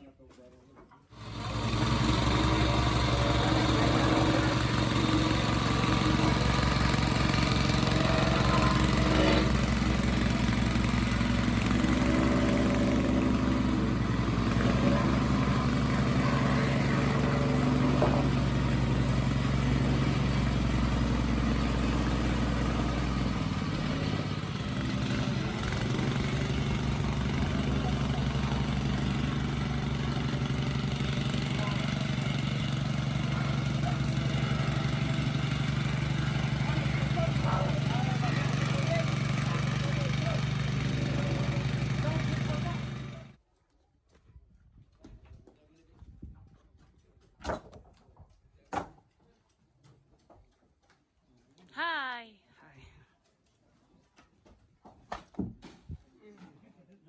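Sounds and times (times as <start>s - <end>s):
engine humming: 1.2s - 43.4s.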